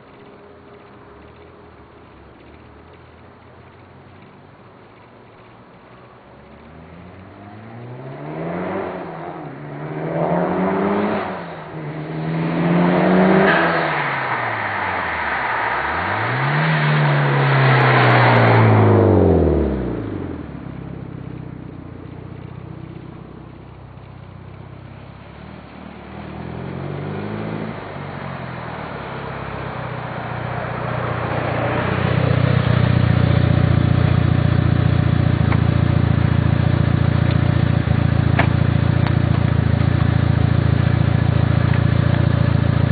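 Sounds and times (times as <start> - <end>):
turbocharged car engine revving: 6.6 - 23.6, 25.2 - 42.9.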